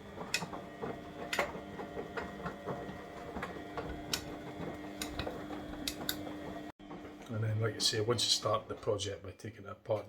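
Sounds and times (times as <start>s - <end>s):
drum clicks and knocks: 0.0s - 7.2s
washing machine humming: 0.0s - 10.0s.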